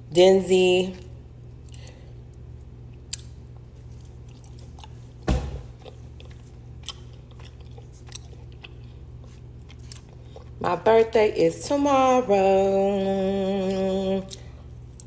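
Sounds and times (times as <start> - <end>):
steady low hum: 0.0 - 15.0
person chewing chicken: 1.6 - 10.6
thud: 5.3 - 5.7.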